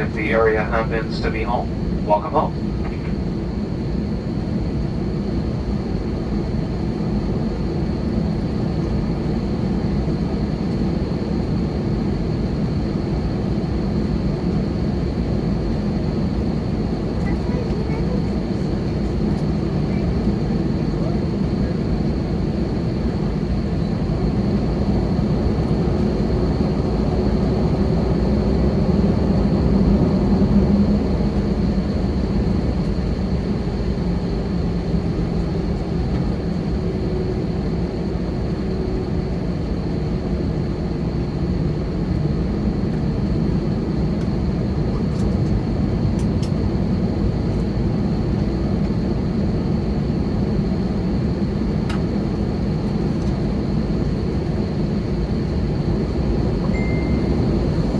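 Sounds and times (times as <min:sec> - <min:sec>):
faint high whine: 0:00.0 - 0:03.2, 0:56.5 - 0:57.9
airplane cabin rumble: 0:00.0 - 0:57.9.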